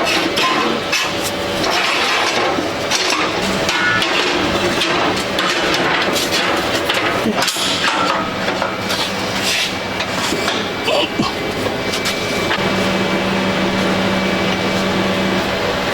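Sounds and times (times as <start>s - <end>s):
metal knocks and clanks: 0.0s - 9.2s
steady machine hum: 0.0s - 15.9s.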